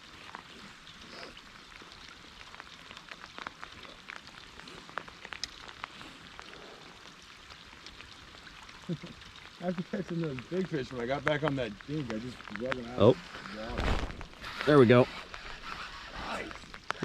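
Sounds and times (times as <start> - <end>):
raindrops ticking on surfaces: 0.0 - 17.0
steady rain hissing: 0.0 - 17.0.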